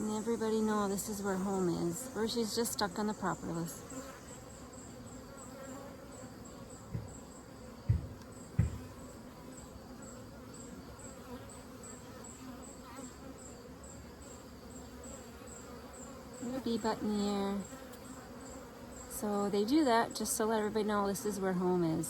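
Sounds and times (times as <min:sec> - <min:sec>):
bees buzzing: 0:00.0 - 0:22.0
low thumps: 0:06.9 - 0:09.0.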